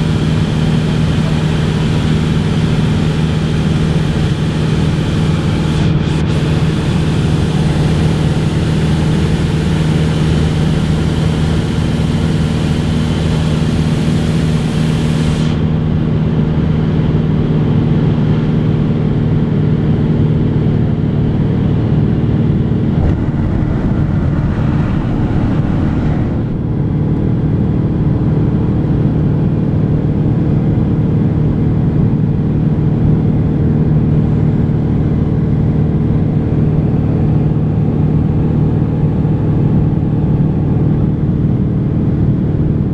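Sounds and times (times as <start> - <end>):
propeller plane engine droning: 0.0 - 42.9
hiss: 1.4 - 15.6.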